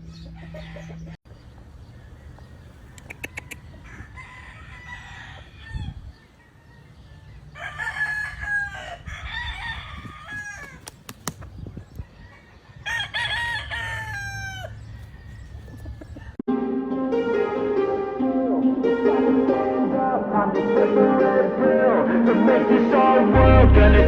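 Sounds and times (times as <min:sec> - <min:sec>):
roosters crowing: 0:00.0 - 0:01.2, 0:01.9 - 0:11.3, 0:11.9 - 0:16.4
sharp clicks: 0:10.8 - 0:11.5.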